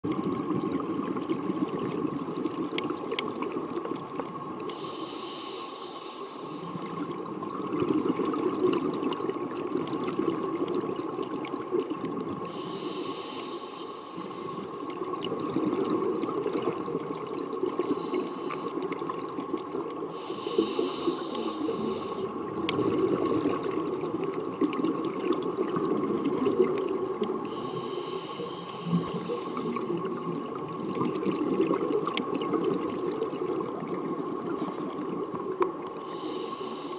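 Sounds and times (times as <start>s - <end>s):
faint hum: 0.1s - 36.9s
muffled underwater breathing: 4.7s - 7.4s, 12.4s - 16.5s, 17.7s - 19.0s, 20.0s - 23.7s, 27.2s - 30.5s, 35.9s - 36.9s.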